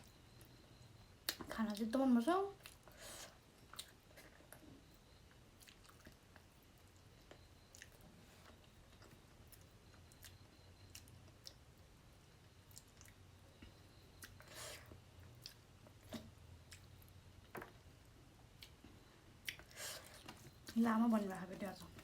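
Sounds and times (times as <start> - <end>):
person chewing food: 2.6 - 11.9, 12.5 - 20.8.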